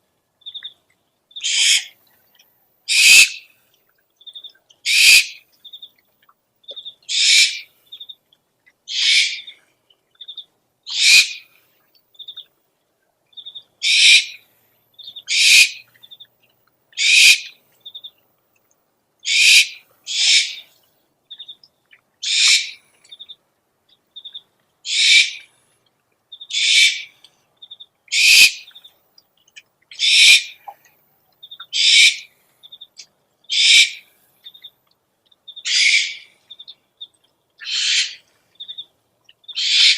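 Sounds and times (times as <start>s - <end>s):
owl screech calls: 1.4s - 2.0s, 2.9s - 3.4s, 4.9s - 5.4s, 7.1s - 7.7s, 8.9s - 9.5s, 10.9s - 11.4s, 13.8s - 14.4s, 15.3s - 15.8s, 17.0s - 17.6s, 19.2s - 20.7s, 22.2s - 22.8s, 24.9s - 25.5s, 26.5s - 27.2s, 28.1s - 28.7s, 29.9s - 30.6s, 31.7s - 32.3s, 33.5s - 34.1s, 35.6s - 36.4s, 37.6s - 38.8s, 39.6s - 39.9s.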